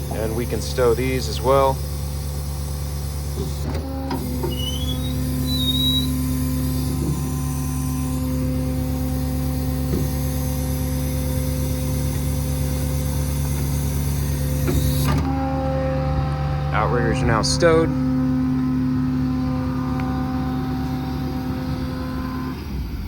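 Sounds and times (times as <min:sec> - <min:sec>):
diesel engine running: 0:00.0 - 0:23.0
hydraulic whine: 0:00.0 - 0:23.0
short high squeak: 0:04.2 - 0:08.2.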